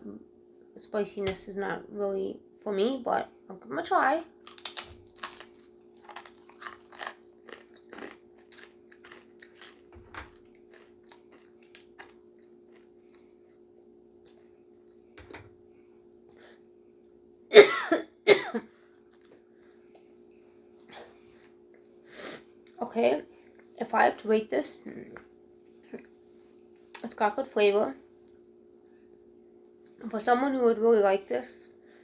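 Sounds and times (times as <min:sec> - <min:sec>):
faint steady hum: 0:00.0 - 0:32.0
person chewing crunchy chips: 0:04.3 - 0:13.3
person coughing: 0:17.5 - 0:18.7.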